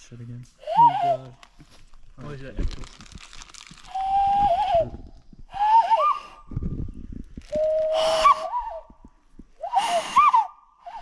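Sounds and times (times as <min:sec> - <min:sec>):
high-pitched whistle-like squeals: 0:03.9 - 0:06.6, 0:07.5 - 0:11.0.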